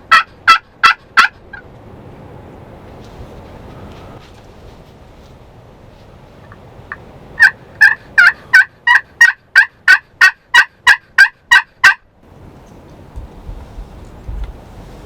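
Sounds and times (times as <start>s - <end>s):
turkey yelps: 0.1s - 1.6s, 7.4s - 12.0s.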